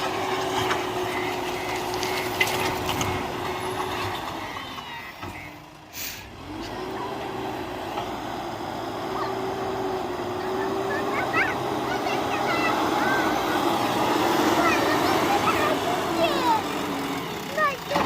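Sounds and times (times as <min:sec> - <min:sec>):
heavy diesel engine running: 0:00.0 - 0:18.0
short sharp hiss: 0:05.9 - 0:06.3.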